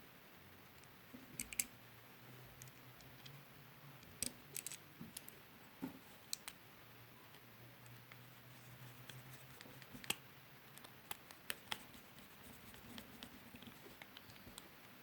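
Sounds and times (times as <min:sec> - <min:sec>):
faint steady low hum: 0:00.0 - 0:15.0
small sharp clicks and taps: 0:04.0 - 0:06.6.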